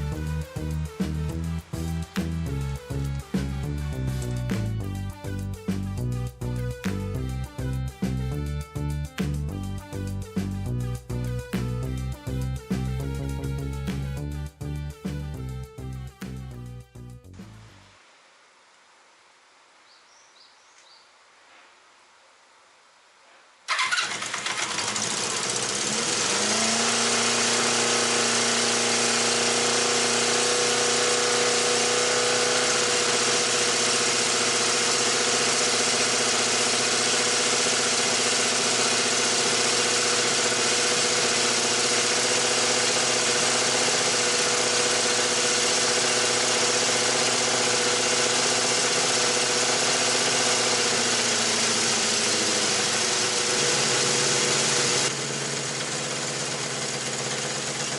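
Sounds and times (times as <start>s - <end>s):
motorcycle engine starting and idling: 0.0s - 7.2s, 23.7s - 57.9s.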